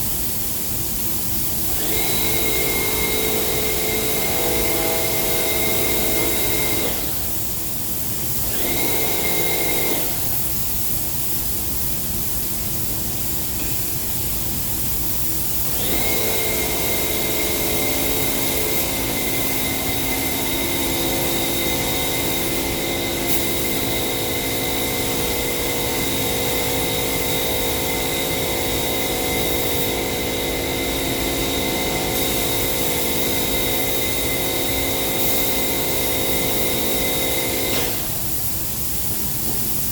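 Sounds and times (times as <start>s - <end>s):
machine hum: 15.8s - 38.2s.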